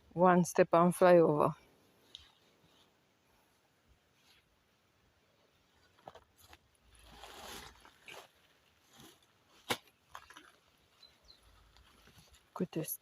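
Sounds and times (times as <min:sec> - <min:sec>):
scuffing and rustling on dirt: 0:05.8 - 0:12.6.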